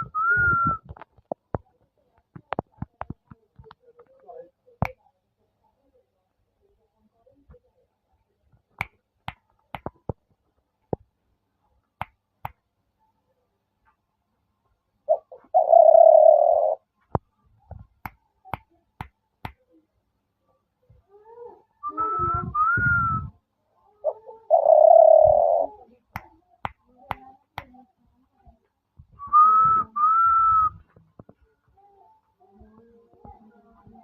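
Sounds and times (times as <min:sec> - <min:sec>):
dove cooing: 0:15.1 - 0:16.8, 0:23.9 - 0:25.9.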